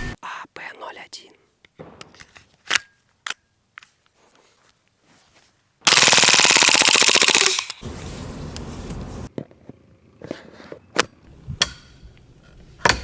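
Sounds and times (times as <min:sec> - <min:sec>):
gas pistol firing full-auto burst: 0:05.9 - 0:07.8.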